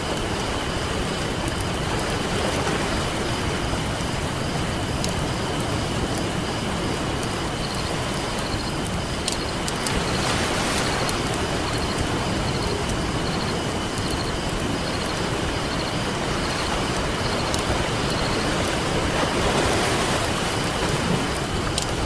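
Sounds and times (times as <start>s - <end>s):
ocean surf on a beach: 0.0s - 22.0s
campfire crackling and popping: 3.7s - 16.2s, 21.3s - 22.0s.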